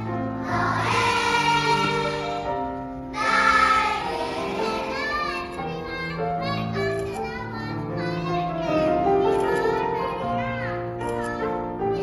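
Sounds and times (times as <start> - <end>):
choir singing: 0.4 - 2.5, 3.2 - 4.9.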